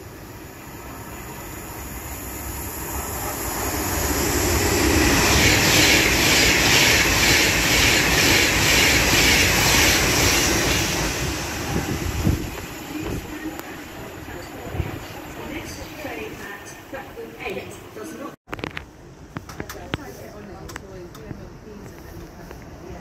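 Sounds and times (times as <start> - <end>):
electric train passing at speed: 0.0 - 18.4.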